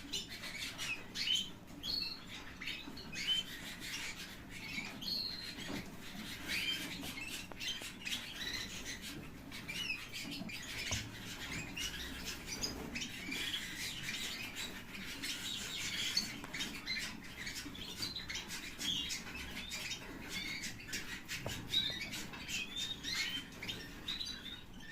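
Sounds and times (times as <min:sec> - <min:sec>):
canaries chirping: 0:00.0 - 0:24.9
faint clicks and taps: 0:10.4 - 0:12.0.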